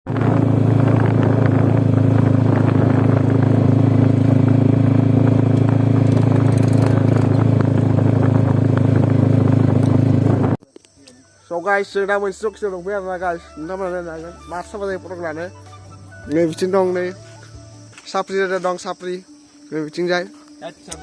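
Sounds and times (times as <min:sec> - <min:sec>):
motorcycle engine idling: 0:00.4 - 0:11.4.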